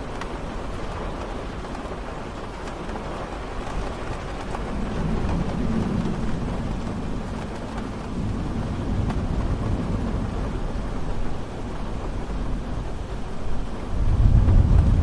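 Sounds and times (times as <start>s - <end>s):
steady rain falling: 0.0s - 15.0s
low rumble: 13.9s - 15.0s.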